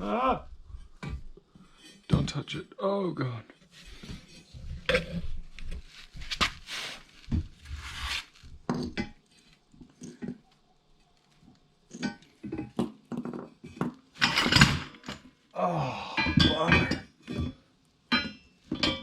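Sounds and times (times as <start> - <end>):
rustling: 3.7 - 8.7
metal parts clinking: 14.2 - 15.3.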